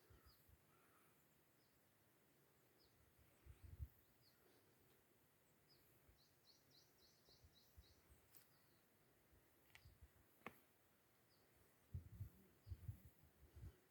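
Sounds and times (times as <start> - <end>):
faint sharp clicks: 9.6 - 10.6.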